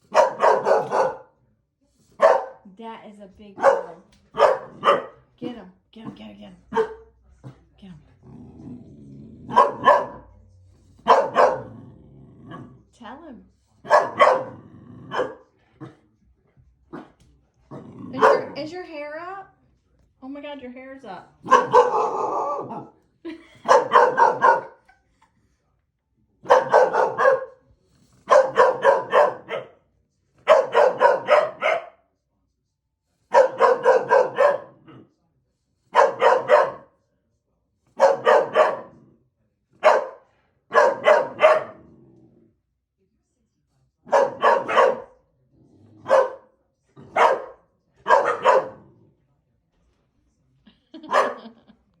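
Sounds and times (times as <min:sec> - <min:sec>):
dog barking: 0:00.0 - 0:01.4, 0:02.2 - 0:02.7, 0:03.6 - 0:05.3, 0:06.7 - 0:07.1, 0:09.5 - 0:10.4, 0:11.0 - 0:11.8, 0:13.8 - 0:16.0, 0:18.1 - 0:18.7, 0:21.4 - 0:23.0, 0:23.6 - 0:24.9, 0:26.4 - 0:27.6, 0:28.2 - 0:29.8, 0:30.4 - 0:32.1, 0:33.3 - 0:35.1, 0:35.9 - 0:37.0, 0:37.9 - 0:39.1, 0:39.8 - 0:42.0, 0:44.0 - 0:45.2, 0:46.0 - 0:49.0, 0:51.0 - 0:51.6.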